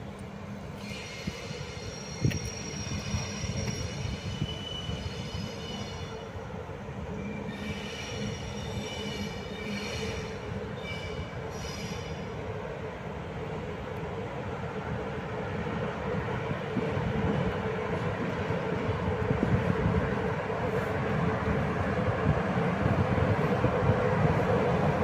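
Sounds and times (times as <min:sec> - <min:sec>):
train rumbling over rails: 0:00.0 - 0:25.0
train wheels squealing: 0:00.7 - 0:06.4, 0:07.2 - 0:12.4.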